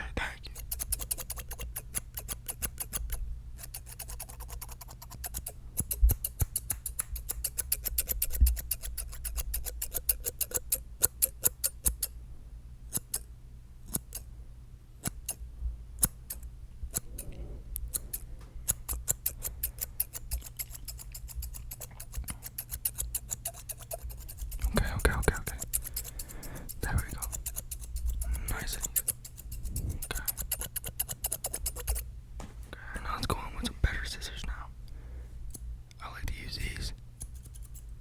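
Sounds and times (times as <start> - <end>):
scissors snipping: 0.6 - 12.1, 12.9 - 13.3, 13.9 - 14.3, 15.0 - 15.4, 16.0 - 32.7, 37.2 - 37.9
low steady hum: 12.1 - 38.0.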